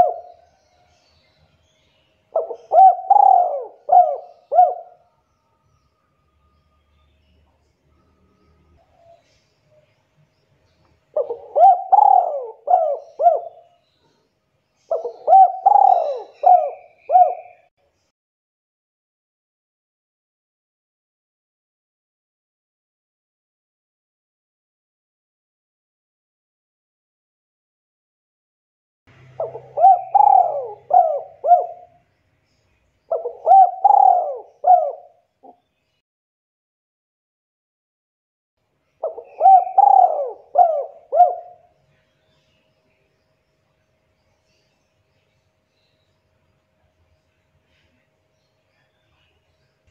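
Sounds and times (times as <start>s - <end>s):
dove cooing: 0.0s - 0.6s, 2.3s - 5.0s, 11.1s - 13.8s, 14.9s - 17.7s, 29.4s - 32.0s, 33.1s - 35.6s, 39.0s - 41.7s.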